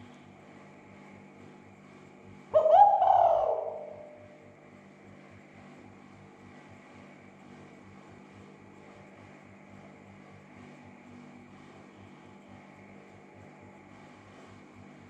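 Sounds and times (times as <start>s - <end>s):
dove cooing: 2.6s - 4.4s
low throbbing hum: 2.6s - 4.6s.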